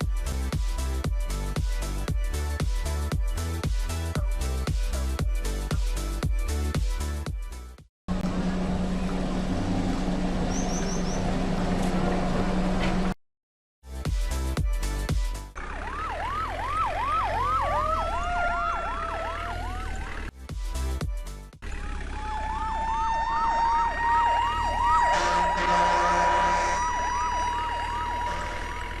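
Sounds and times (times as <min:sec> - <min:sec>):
electronic siren yelping: 0:15.6 - 0:20.3, 0:21.6 - 0:29.0.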